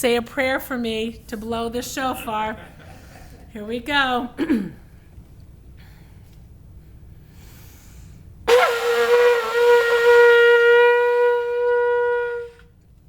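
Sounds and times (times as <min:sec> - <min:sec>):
shofar long held note: 0:08.5 - 0:12.8.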